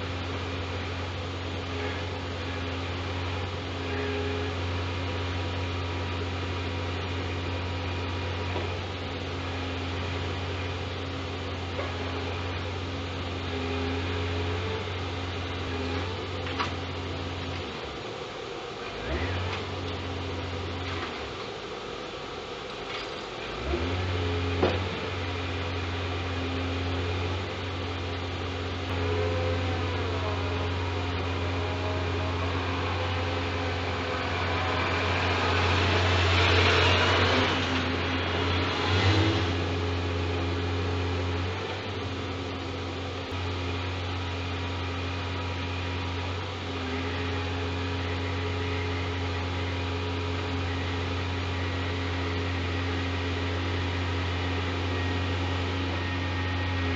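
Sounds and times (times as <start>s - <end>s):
truck diesel engine humming: 0.0s - 56.9s.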